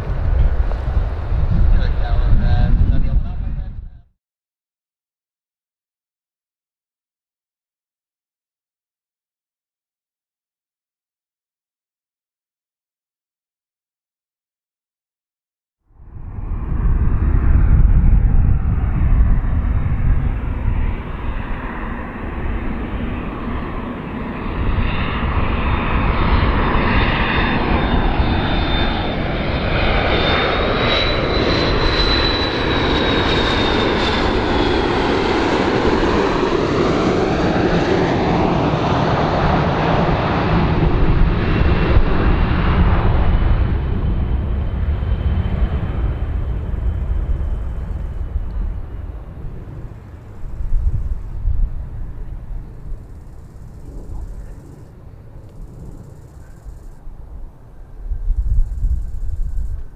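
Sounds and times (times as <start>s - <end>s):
airplane engines rumbling: 0.0s - 4.1s, 15.9s - 59.9s
high engine whine: 16.0s - 59.9s.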